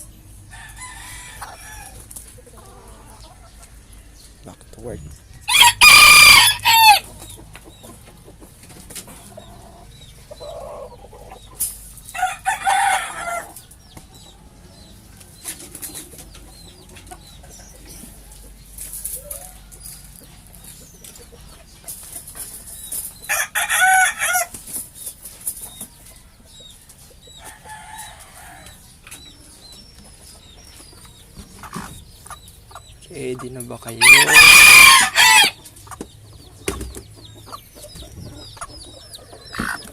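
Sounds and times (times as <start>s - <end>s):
hens clucking: 0.0s - 39.9s
rooster crowing: 0.5s - 2.0s, 5.4s - 7.1s, 12.2s - 13.6s, 23.3s - 24.5s, 34.0s - 35.6s.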